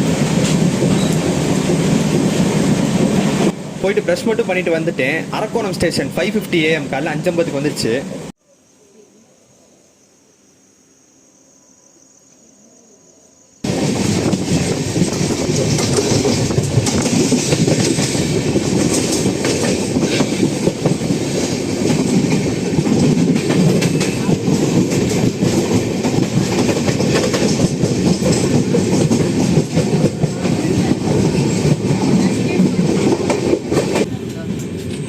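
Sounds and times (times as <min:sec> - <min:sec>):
train wheels rumbling on rails: 0:00.0 - 0:08.3, 0:13.6 - 0:35.0
wheels clicking over track: 0:13.6 - 0:35.0.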